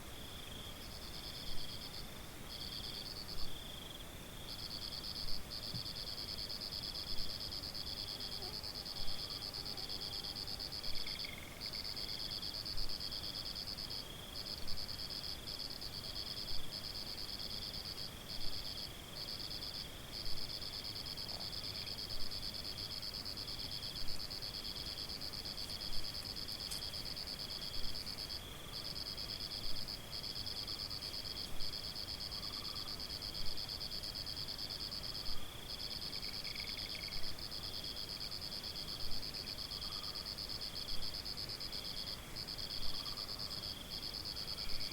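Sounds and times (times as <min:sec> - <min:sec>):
louder insect call: 0:00.0 - 0:44.9
lower pulsing insect call: 0:00.0 - 0:44.9
crickets trilling: 0:00.1 - 0:44.9.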